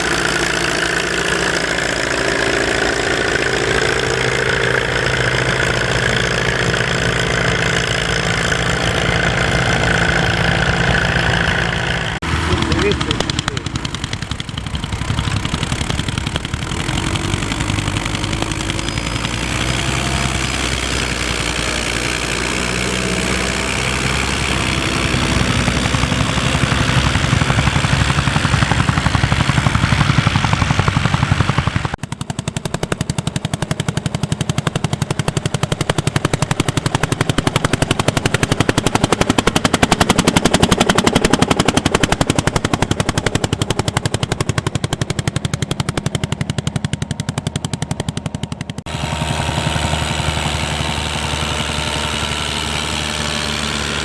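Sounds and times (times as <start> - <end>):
sharp engine exhaust beat: 0.0 - 54.0
tractor engines working: 0.0 - 54.0.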